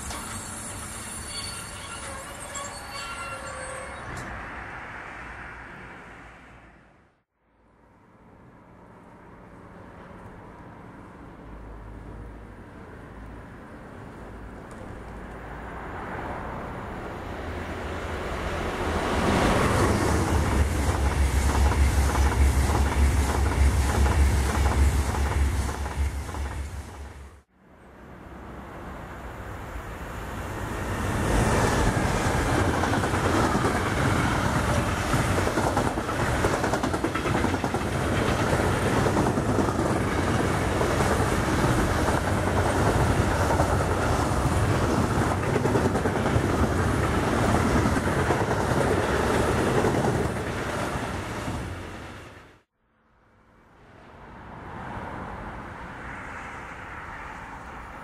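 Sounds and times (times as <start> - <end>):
freight train rumbling past: 14.9 - 52.7
wheels clicking over rail joints: 31.9 - 50.9.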